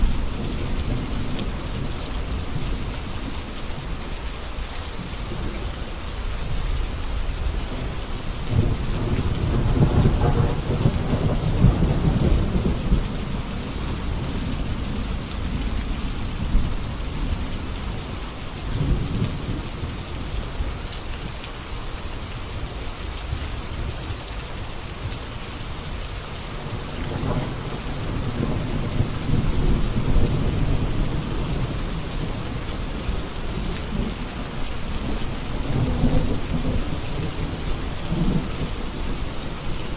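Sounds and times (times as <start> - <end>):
steady rain falling: 0.0 - 39.9
distant thunder rumbling: 7.7 - 17.8, 26.6 - 39.9.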